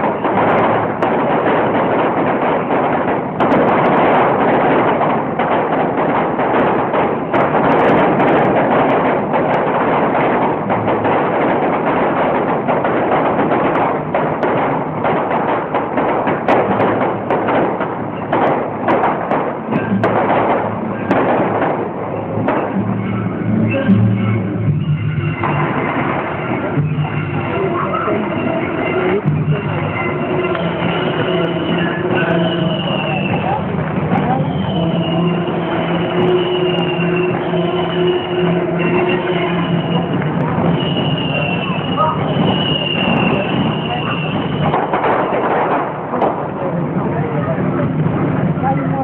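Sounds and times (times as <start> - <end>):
fireworks bangs: 0.0 - 49.0.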